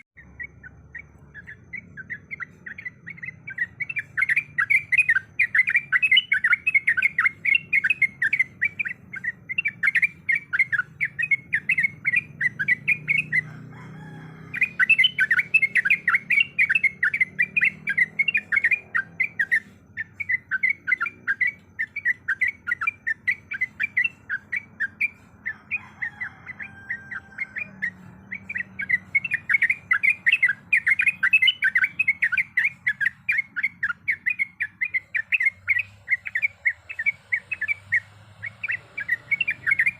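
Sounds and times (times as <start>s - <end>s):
bulbul singing chattering notes: 0.0s - 39.9s.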